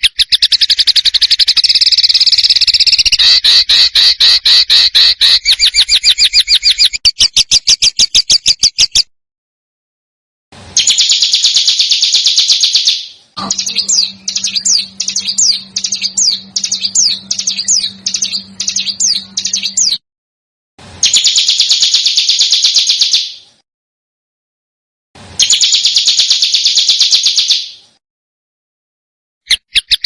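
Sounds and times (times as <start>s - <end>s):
bird whistled downward notes: 0.0s - 8.8s, 10.8s - 20.0s, 21.0s - 23.4s, 25.4s - 27.8s
songbird high trill: 0.2s - 7.1s, 10.8s - 20.0s
steady low hum: 13.3s - 20.0s.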